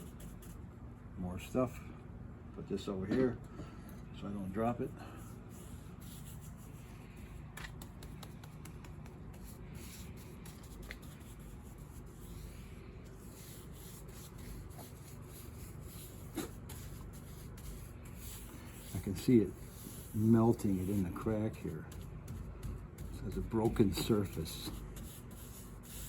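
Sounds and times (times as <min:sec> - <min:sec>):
low steady hum: 0:00.0 - 0:26.0
paintbrush brushing on wood: 0:05.3 - 0:26.0.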